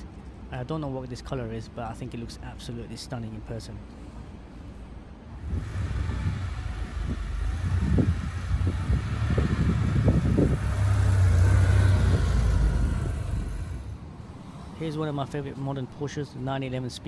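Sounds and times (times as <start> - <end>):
car engine driving by: 5.4 - 14.9.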